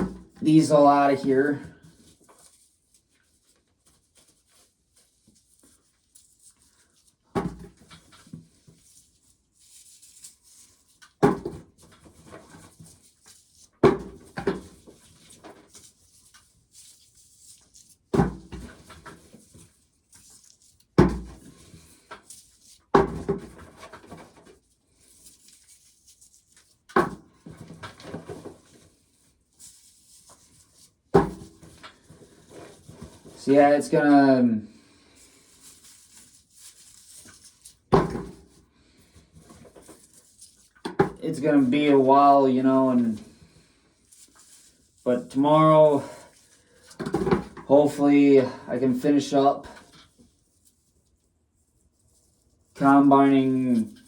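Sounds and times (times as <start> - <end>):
corn cobs clattering from containers: 0.0 - 2.5, 21.0 - 24.6, 44.3 - 50.1.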